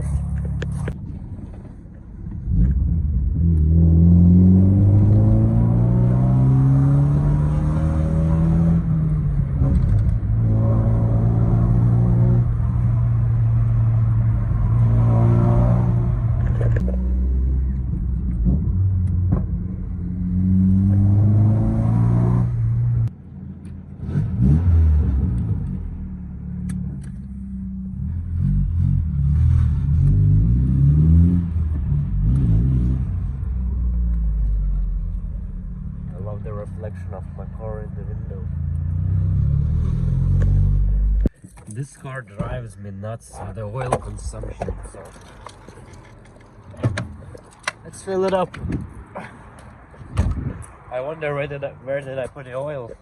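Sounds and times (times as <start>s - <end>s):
car engine accelerating: 2.2s - 42.6s.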